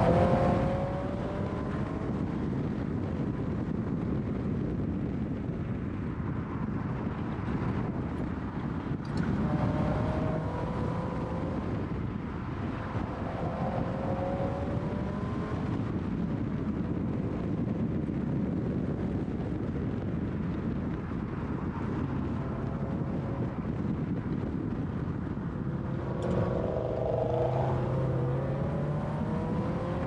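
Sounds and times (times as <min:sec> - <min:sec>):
car engine revving: 0:00.0 - 0:02.5, 0:09.1 - 0:11.8, 0:12.8 - 0:15.9, 0:21.8 - 0:30.0
wind noise: 0:00.0 - 0:30.0.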